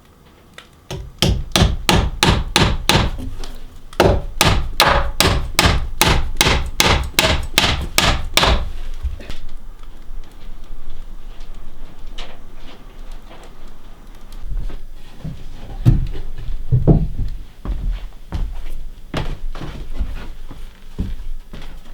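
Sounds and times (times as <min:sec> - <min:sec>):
hammer striking wood: 0:00.9 - 0:08.8.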